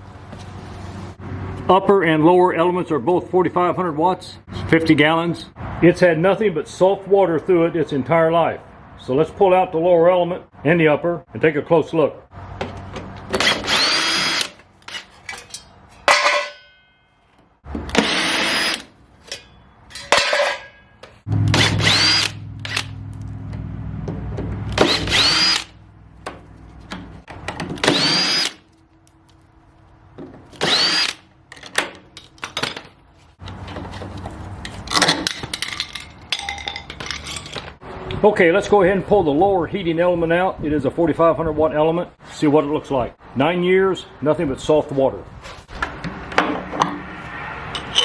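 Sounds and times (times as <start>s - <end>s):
power drill spinning: 13.3s - 15.0s, 17.9s - 18.9s, 21.5s - 22.9s, 24.7s - 25.8s, 27.8s - 28.6s, 30.6s - 31.2s.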